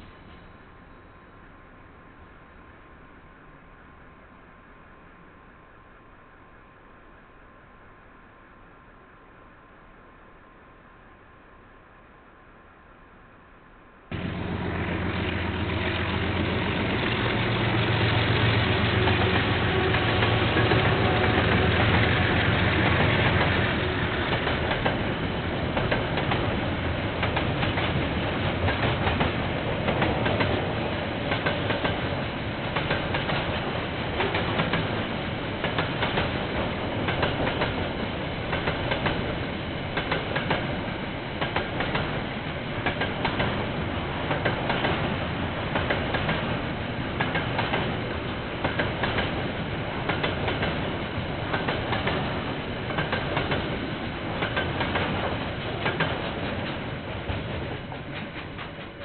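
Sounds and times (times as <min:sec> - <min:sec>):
diesel locomotive engine: 0:14.1 - 0:59.0
wheels clacking over rail joints: 0:14.2 - 0:40.8, 0:41.4 - 0:59.0.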